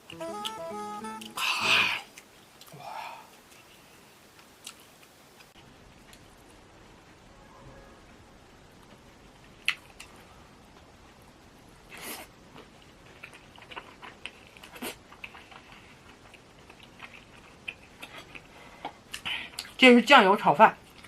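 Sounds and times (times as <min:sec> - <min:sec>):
close chewing with crunches: 0:11.9 - 0:19.8.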